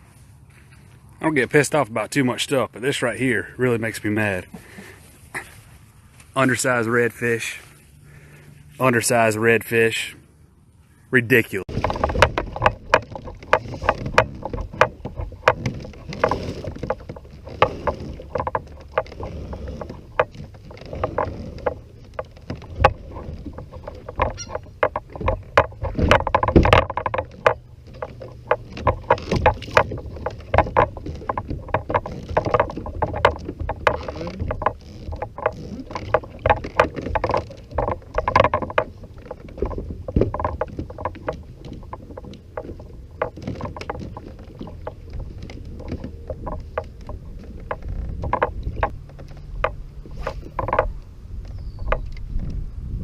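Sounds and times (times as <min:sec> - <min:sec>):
gear knocks and clunks: 0:11.6 - 0:53.0.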